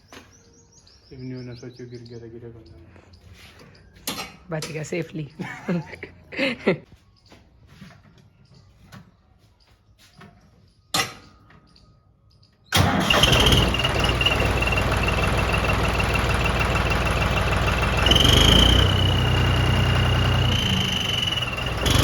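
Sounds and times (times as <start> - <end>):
tractor diesel engine: 12.7 - 22.0
turbo whistle: 18.0 - 22.0.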